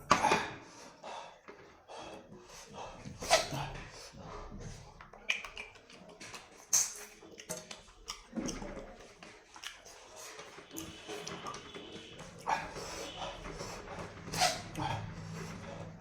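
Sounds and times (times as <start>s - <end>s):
chewing: 2.6s - 15.9s
mouth clicks and smacks: 5.0s - 12.6s.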